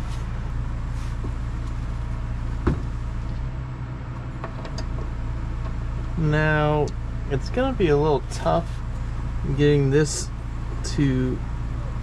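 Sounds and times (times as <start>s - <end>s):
electric fan humming: 4.2s - 12.0s.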